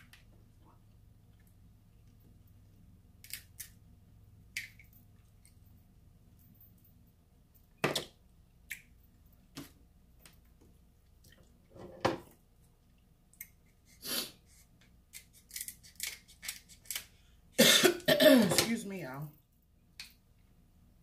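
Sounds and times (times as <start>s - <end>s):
crab shell cracking: 15.1s - 17.1s.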